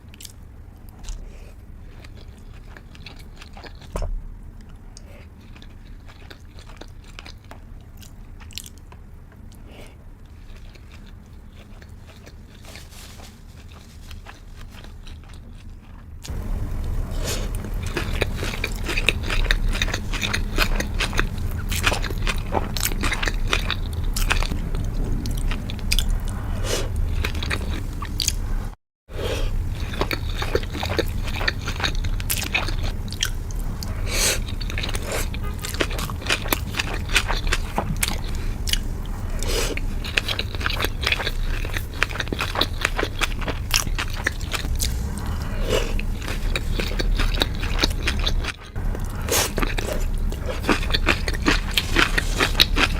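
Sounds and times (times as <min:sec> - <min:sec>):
wet chewing and biting: 0:01.9 - 0:09.6, 0:17.4 - 0:28.4, 0:29.6 - 0:52.9.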